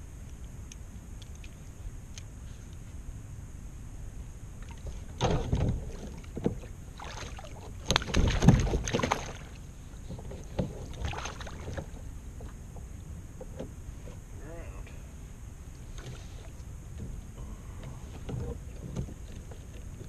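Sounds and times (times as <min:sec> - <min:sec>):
water splashing around kayak: 0:04.6 - 0:13.7.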